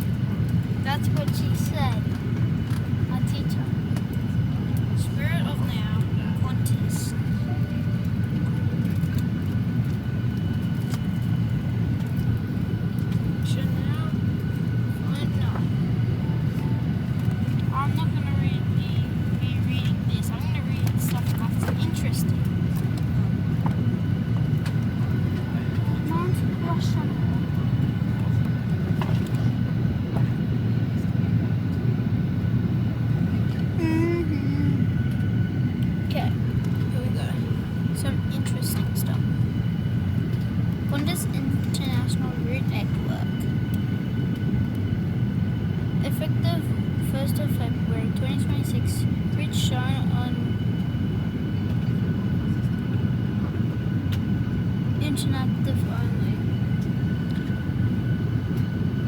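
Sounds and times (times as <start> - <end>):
aircraft cabin rumble: 0.0 - 59.0
faint steady whine: 0.0 - 59.0
short voice sound: 33.8 - 34.9.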